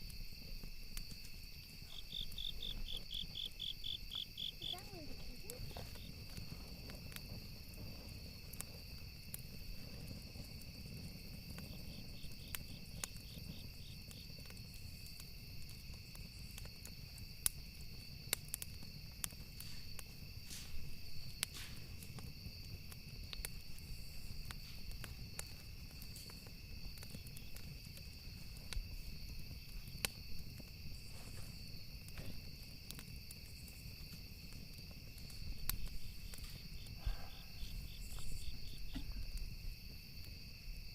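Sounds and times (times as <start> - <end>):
campfire crackling: 0.0 - 40.9
crickets chirping: 0.0 - 40.9.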